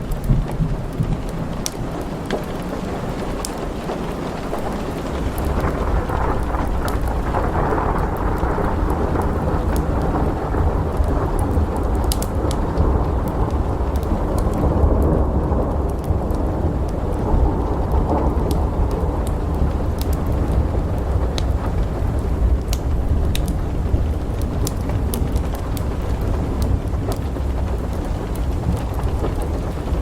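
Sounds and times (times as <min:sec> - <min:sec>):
rolling thunder: 0:00.0 - 0:30.0
steady rain: 0:00.0 - 0:30.0
wood fire crackling: 0:00.0 - 0:30.0.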